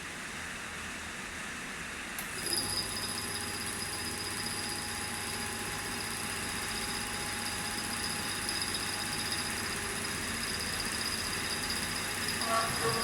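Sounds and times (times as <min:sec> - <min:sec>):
engraving machine motor humming: 0:08.3 - 0:13.0.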